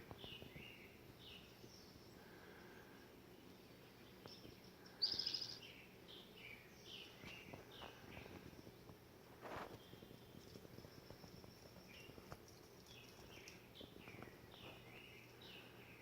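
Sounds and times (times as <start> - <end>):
small birds chirping: 0.0 - 16.0
rapidly pulsed bird call: 4.2 - 8.4.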